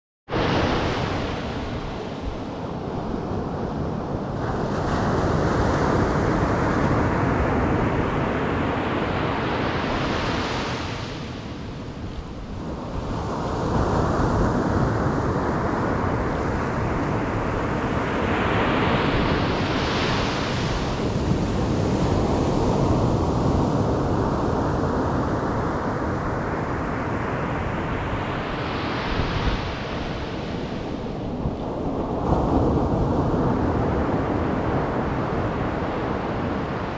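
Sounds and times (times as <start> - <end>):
waves breaking on beach: 0.3 - 36.9.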